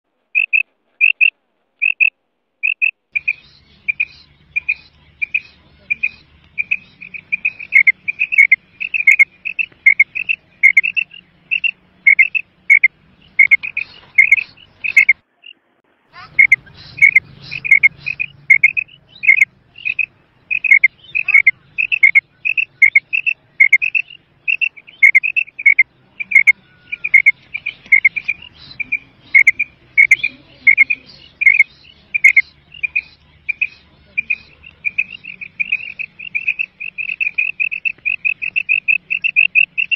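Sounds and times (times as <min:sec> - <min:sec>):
quail calling: 0:00.4 - 0:15.6, 0:16.2 - 0:39.9.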